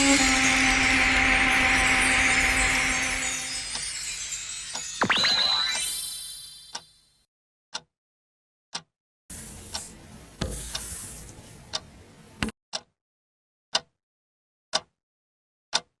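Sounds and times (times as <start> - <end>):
hissing noise: 0.0 - 4.4
ringing tone: 0.0 - 7.0
clock-like sharp ticks: 12.7 - 12.9, 13.7 - 13.9, 14.7 - 14.9, 15.7 - 15.9.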